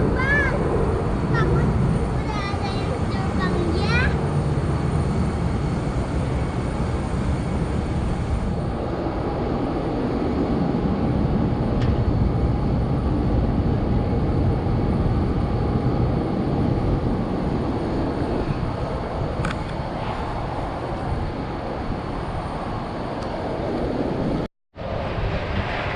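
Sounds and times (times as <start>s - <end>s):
jet airliner engines rumbling: 0.0s - 25.9s.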